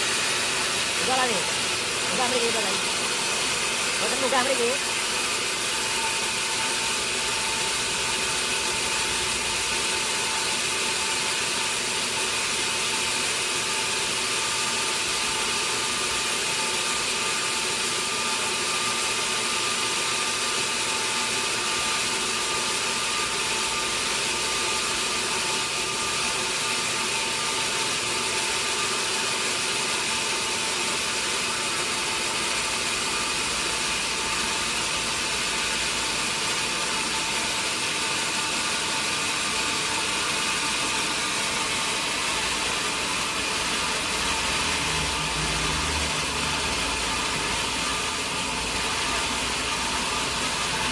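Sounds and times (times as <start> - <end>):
thin steady whine: 0.0 - 12.9
sawmill saw whirring: 0.0 - 50.9.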